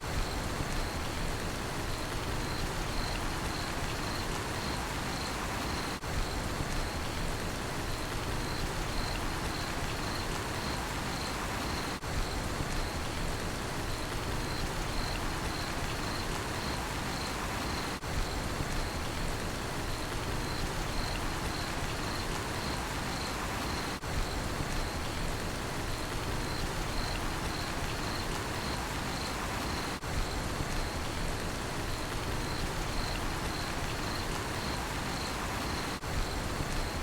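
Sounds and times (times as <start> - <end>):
steady rainfall: 0.0 - 37.0
cricket chirping: 1.9 - 6.1, 7.9 - 12.2, 14.0 - 19.1, 20.3 - 25.2, 26.2 - 30.0, 31.9 - 37.0.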